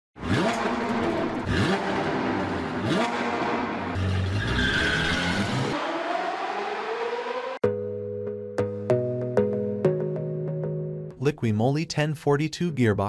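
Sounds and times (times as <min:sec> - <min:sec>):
sports car engine revving: 0:00.2 - 0:07.6
tyre screech: 0:04.1 - 0:05.8.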